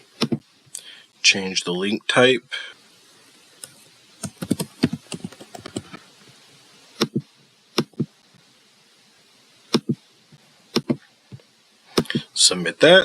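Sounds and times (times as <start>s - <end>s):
computer keyboard typing: 4.2s - 5.9s.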